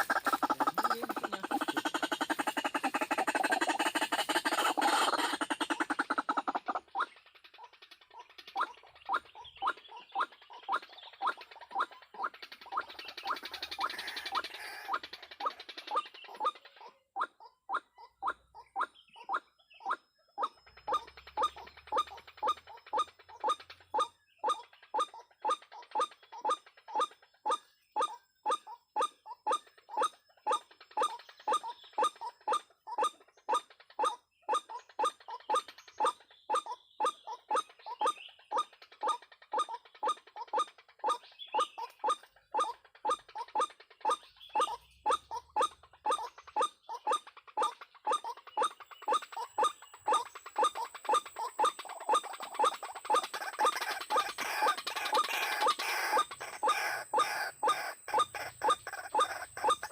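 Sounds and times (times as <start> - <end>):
waterhen croaking call: 0.0 - 7.1, 8.5 - 19.4, 36.5 - 59.9.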